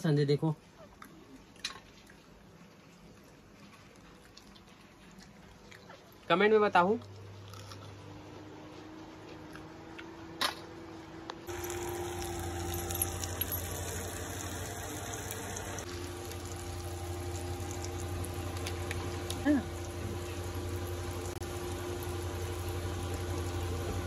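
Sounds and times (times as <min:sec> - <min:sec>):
small crackles of frying: 0:00.7 - 0:07.8, 0:11.5 - 0:24.0
gas burner hum: 0:07.9 - 0:24.0
onions frying in oil: 0:11.5 - 0:24.0.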